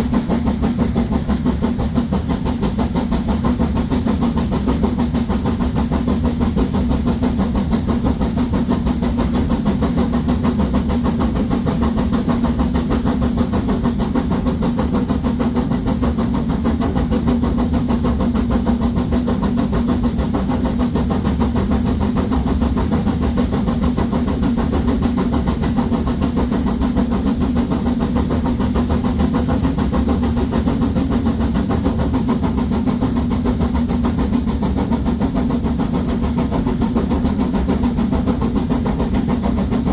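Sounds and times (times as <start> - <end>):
steam locomotive exhaust beats: 0.0 - 39.9.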